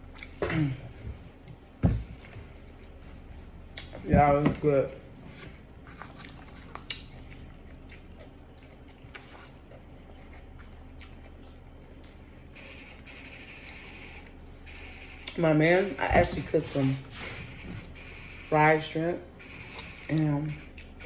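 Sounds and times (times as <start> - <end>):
person chewing food: 0.0 - 4.1, 5.0 - 15.4
low steady hum: 0.0 - 21.0.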